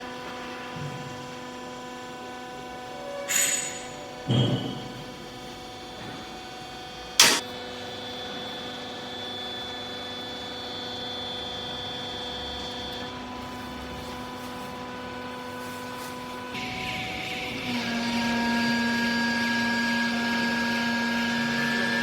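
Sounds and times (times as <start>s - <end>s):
electric motor and pump humming: 3.8s - 22.0s
sharp metal clank: 7.2s - 7.4s.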